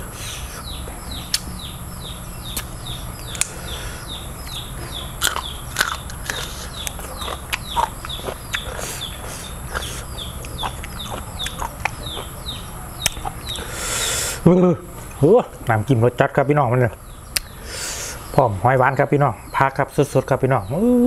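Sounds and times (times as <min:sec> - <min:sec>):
bird chirping: 0:00.0 - 0:21.0
person chewing crunchily: 0:02.5 - 0:03.8, 0:04.4 - 0:14.0.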